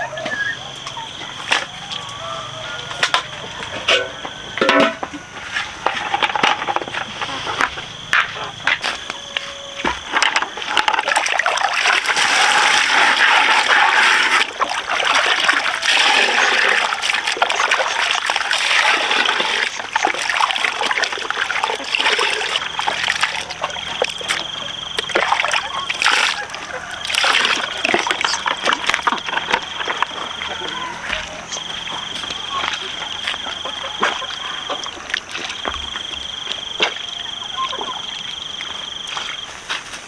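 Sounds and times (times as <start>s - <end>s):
water splashing and trickling: 1.1s - 39.8s.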